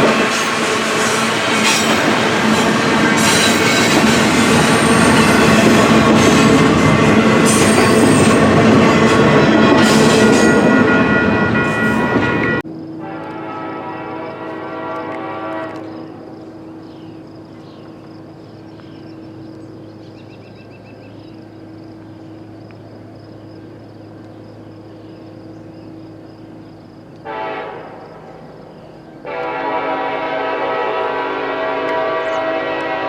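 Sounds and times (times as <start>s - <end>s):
locomotive air horn blasts: 10.0s - 16.3s, 27.2s - 28.1s, 29.2s - 33.0s
locomotive engine rumble: 13.1s - 33.0s.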